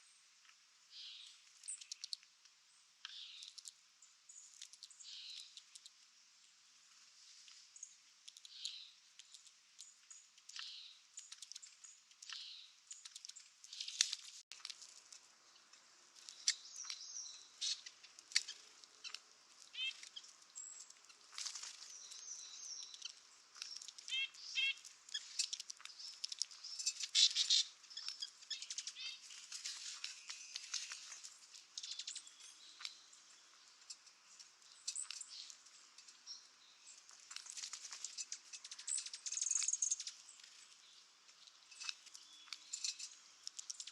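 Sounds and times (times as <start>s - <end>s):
rustles: 0.0s - 43.9s
high bird chirps and calls: 8.5s - 9.0s, 16.3s - 21.2s, 21.9s - 29.3s.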